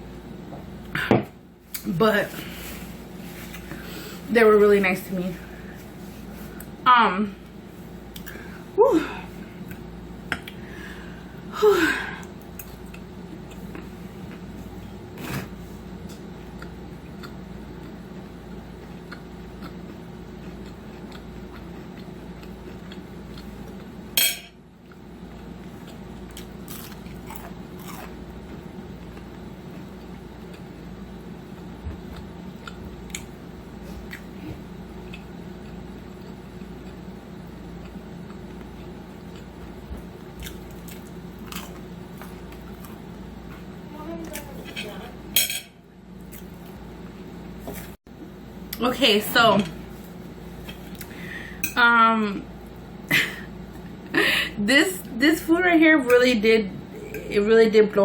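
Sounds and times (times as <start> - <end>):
steady low hum: 0.0 - 58.0
food crunching: 16.2 - 24.0, 24.8 - 33.4, 37.8 - 44.7, 46.1 - 47.2
cutlery clinking on dishes: 45.4 - 45.8.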